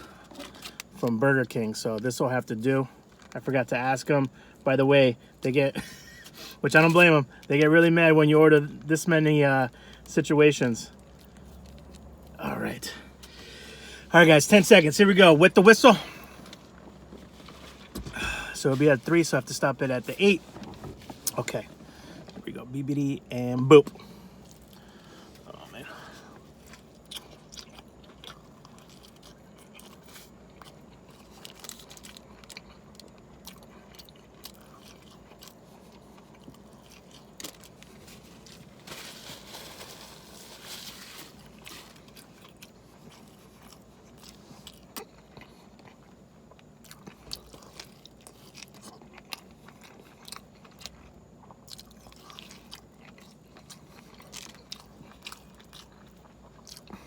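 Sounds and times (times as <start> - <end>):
person chewing food: 10.9 - 12.4, 23.8 - 57.0.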